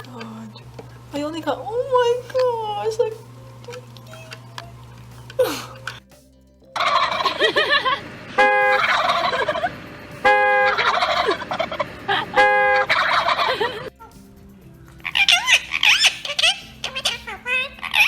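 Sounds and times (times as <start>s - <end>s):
loud parrot calls: 10.6s - 13.8s, 15.0s - 18.0s
parrot warbling chatter: 10.7s - 13.8s, 15.0s - 18.0s.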